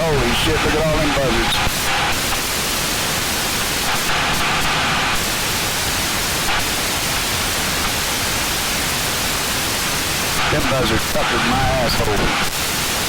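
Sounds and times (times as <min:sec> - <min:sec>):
aircraft cockpit engine hiss: 0:09.1 - 0:13.0.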